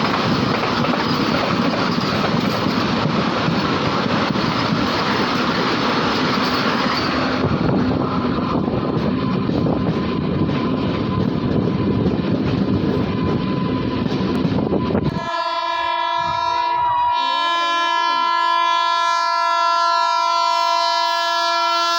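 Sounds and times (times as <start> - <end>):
train rumbling across bridge: 0.0 - 21.9
train horn blast: 14.8 - 21.9.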